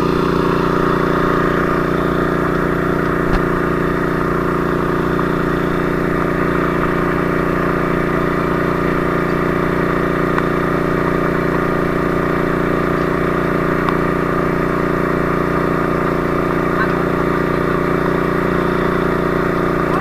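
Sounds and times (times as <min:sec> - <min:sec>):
fire truck engine running: 0:00.0 - 0:20.0.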